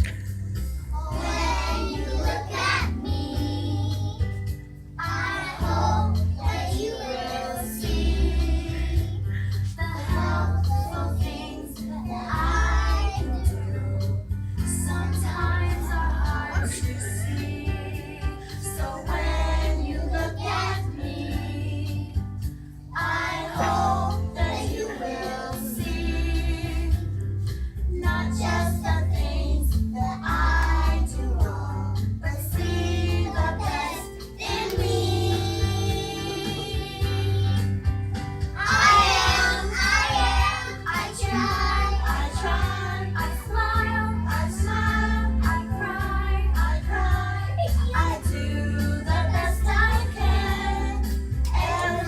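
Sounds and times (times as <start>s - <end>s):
children singing: 1.0s - 4.1s, 5.0s - 9.2s, 9.8s - 13.8s, 23.0s - 27.0s, 32.5s - 37.6s, 38.6s - 52.0s
backing track with bass line: 25.8s - 52.0s.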